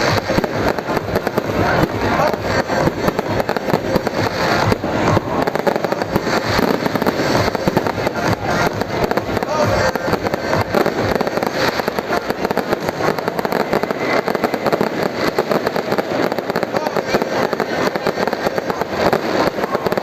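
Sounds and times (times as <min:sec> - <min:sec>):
fireworks crackling bangs: 0:00.0 - 0:20.0.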